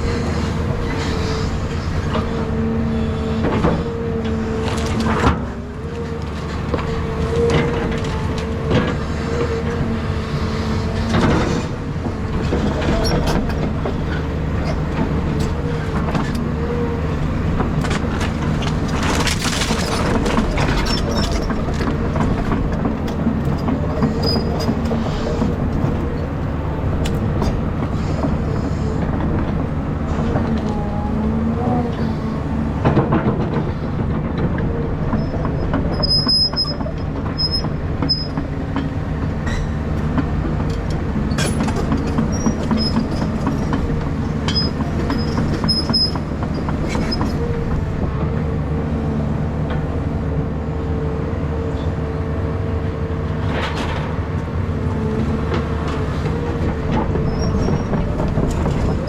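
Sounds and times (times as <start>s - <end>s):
excavator diesel engine running: 0.0s - 59.0s
demolition debris clattering: 17.6s - 26.6s.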